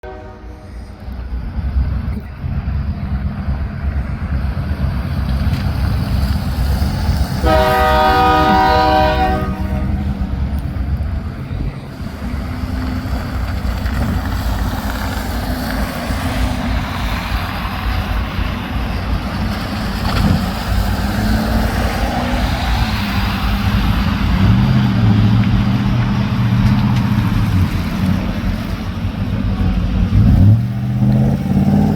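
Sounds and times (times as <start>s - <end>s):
train horn blast: 0.0s - 1.0s, 7.4s - 10.4s
diesel locomotives rumbling: 0.0s - 31.9s.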